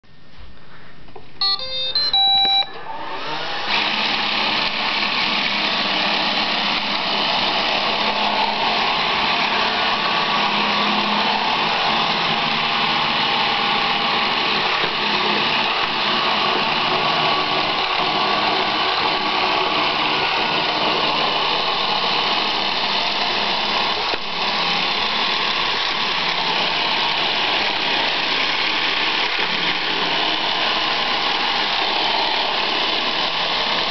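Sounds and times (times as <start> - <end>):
robot vacuum start-up beeps: 1.4 - 3.6
vacuum motor and brushes running: 1.7 - 33.9.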